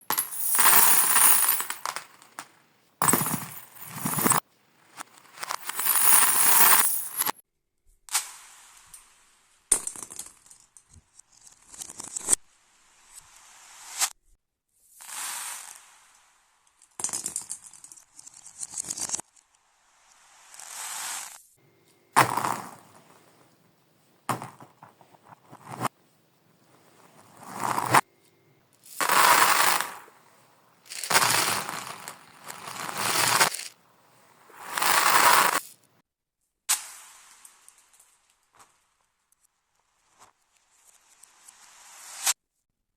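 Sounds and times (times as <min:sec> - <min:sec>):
reversed marbles rolling and clattering: 0:05.0 - 0:07.4, 0:22.2 - 0:23.4, 0:27.0 - 0:28.1, 0:28.8 - 0:35.8.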